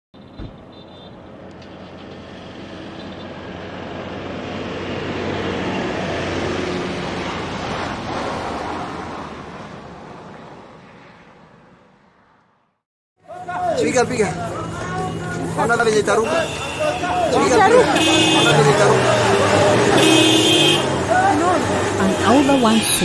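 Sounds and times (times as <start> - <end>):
vehicle passing at speed: 1.3 - 12.8, 17.1 - 23.0.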